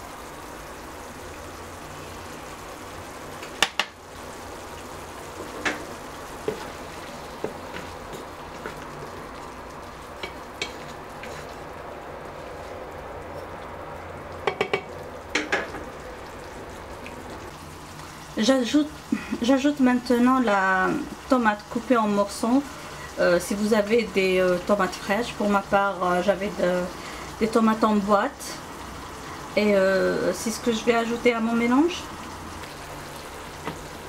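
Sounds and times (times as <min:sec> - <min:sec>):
food sizzling in oil: 0:00.0 - 0:34.0
utensils knocking against pan: 0:14.4 - 0:15.8.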